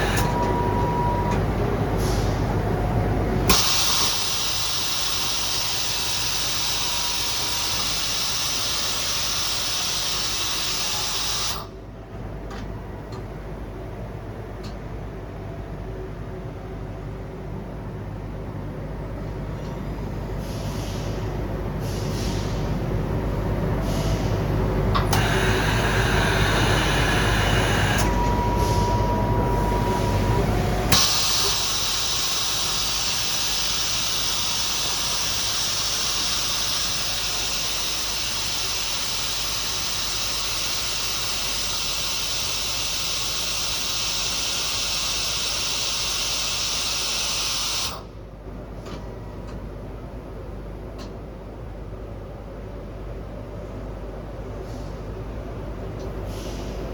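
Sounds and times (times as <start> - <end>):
loud cleaning hiss: 3.5 - 11.6, 30.9 - 48.0
machine rumble: 22.6 - 34.3.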